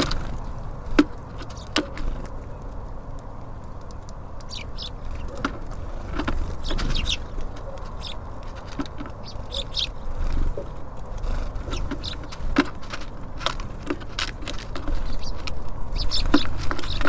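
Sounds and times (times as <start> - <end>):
birds pecking and landing clicks: 0.0 - 17.0
songbirds chirping: 0.0 - 17.0
steady low rumble: 0.0 - 17.0.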